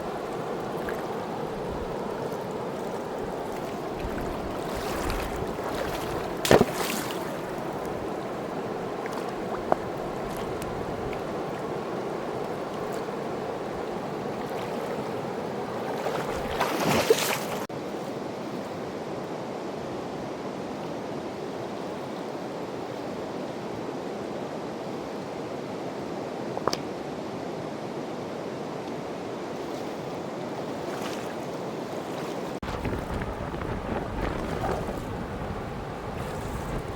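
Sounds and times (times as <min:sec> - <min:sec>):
river rushing: 0:00.0 - 0:17.7.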